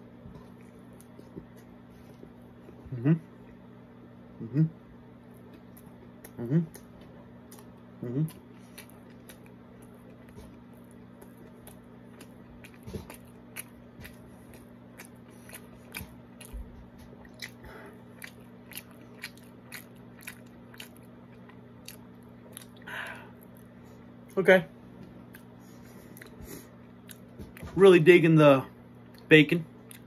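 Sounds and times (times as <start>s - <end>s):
low hum: 0.0s - 30.0s
person chewing crunchy food: 5.3s - 24.3s, 25.2s - 27.8s, 29.0s - 30.0s.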